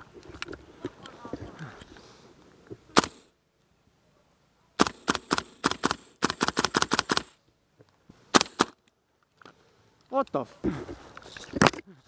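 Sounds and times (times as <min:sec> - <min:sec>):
airsoft gun shots: 0:02.9 - 0:03.3, 0:04.8 - 0:07.4, 0:08.3 - 0:08.8.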